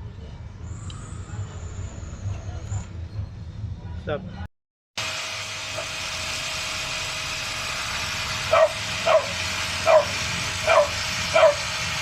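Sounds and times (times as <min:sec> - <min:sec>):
angle grinder on metal blade: 0:05.0 - 0:12.0
dog barking: 0:08.5 - 0:11.7.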